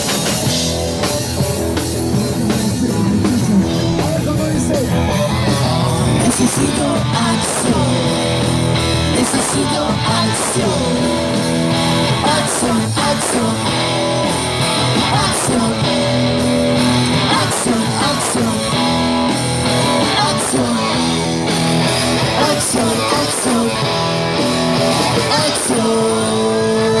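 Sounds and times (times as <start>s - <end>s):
drum beat: 0.0s - 20.8s
guitar: 0.0s - 27.0s
rock and roll band playing: 0.0s - 27.0s.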